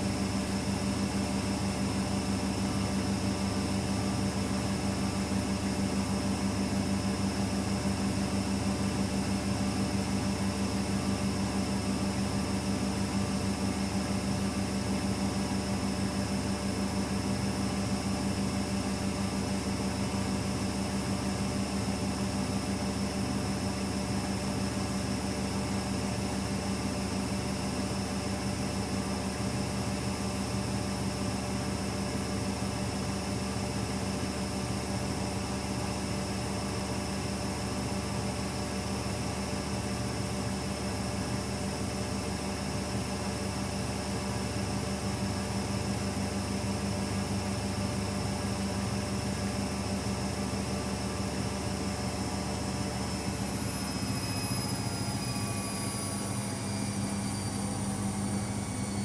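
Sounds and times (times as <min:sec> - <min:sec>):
washing machine humming: 0:46.6 - 0:59.0.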